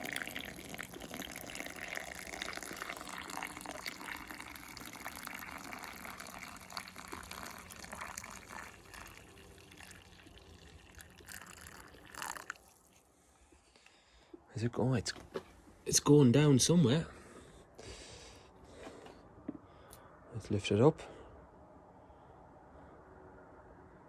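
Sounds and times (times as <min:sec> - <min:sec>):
water pouring into a funnel: 0:00.0 - 0:13.1.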